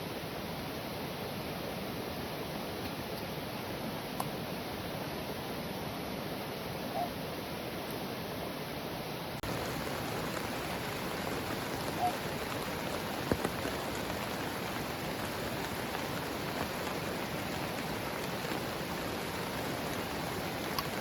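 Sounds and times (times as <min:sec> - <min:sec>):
heavy rain on a tent: 0:07.4 - 0:21.0.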